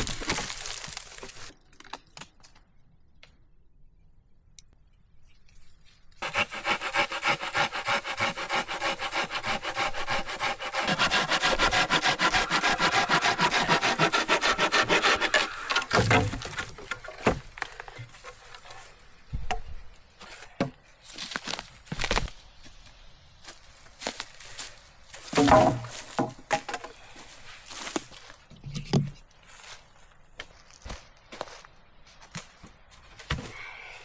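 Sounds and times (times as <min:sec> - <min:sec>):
hand saw cutting wood: 0:06.2 - 0:18.8, 0:25.3 - 0:26.7
wood knocking: 0:10.8 - 0:18.8, 0:25.3 - 0:26.9.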